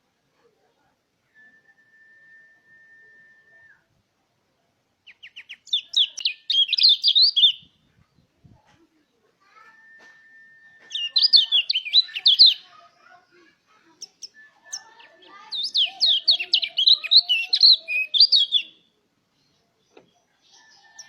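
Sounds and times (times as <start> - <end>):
bird twittering: 5.1 - 7.7, 10.8 - 12.8, 14.0 - 18.8.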